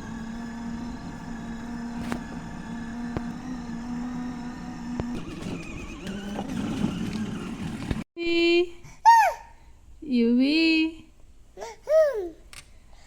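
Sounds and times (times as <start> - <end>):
vehicle motor humming: 0.0 - 8.1.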